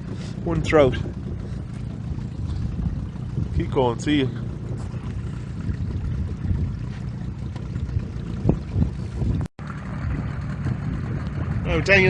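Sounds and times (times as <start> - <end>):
outboard motor running: 0.0 - 12.0
wind buffeting microphone: 0.0 - 12.0.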